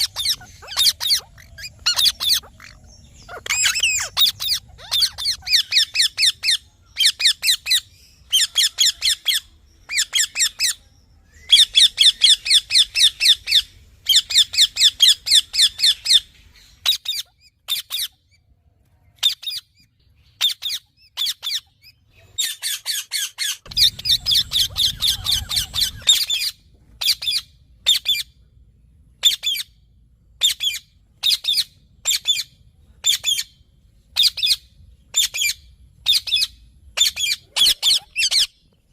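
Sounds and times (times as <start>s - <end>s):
parakeet screeching: 0.0s - 10.7s, 22.4s - 28.2s, 34.2s - 38.5s
low rumble: 23.7s - 26.9s.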